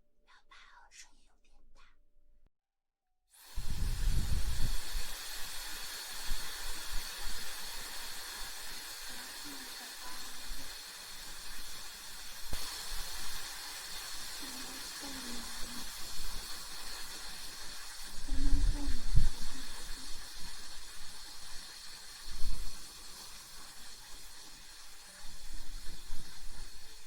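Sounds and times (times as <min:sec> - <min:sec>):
steady airy hiss: 0:03.4 - 0:27.0.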